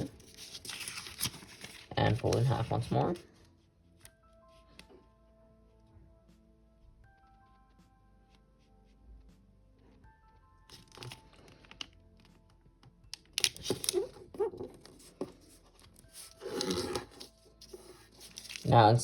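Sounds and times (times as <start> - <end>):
paper crinkling: 0.0 - 3.2, 10.7 - 11.8, 13.4 - 19.0
faint background music: 0.0 - 19.0.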